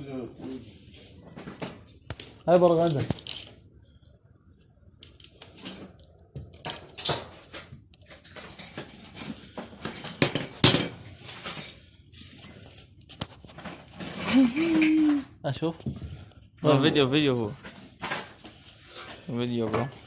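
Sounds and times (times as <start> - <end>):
metal tools clinking and rattling: 2.5 - 3.6, 5.1 - 12.8, 13.6 - 15.7.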